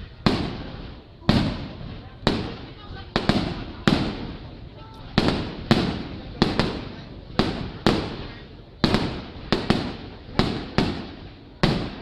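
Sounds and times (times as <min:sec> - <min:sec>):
fireworks booming: 0:00.0 - 0:12.0.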